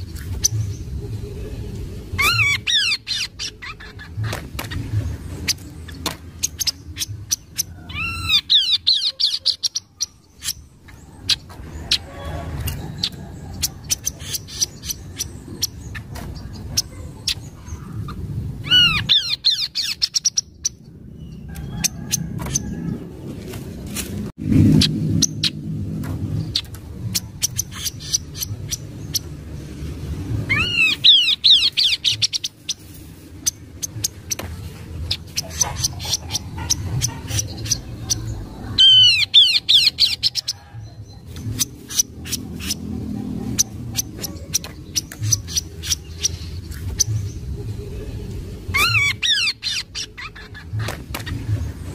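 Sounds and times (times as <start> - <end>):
bird calling: 35.1 - 47.4.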